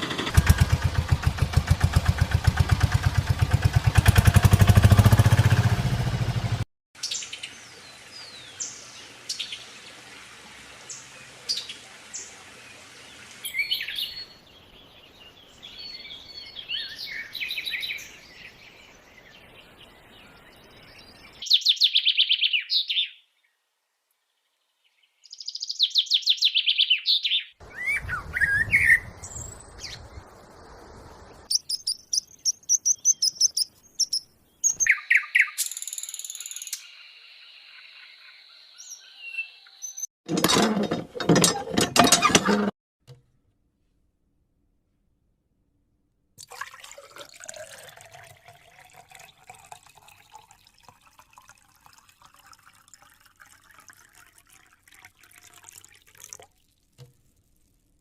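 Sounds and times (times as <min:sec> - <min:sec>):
small engine pulsing: 0:00.0 - 0:06.6
birds chirping: 0:10.6 - 0:23.6, 0:24.4 - 0:40.1.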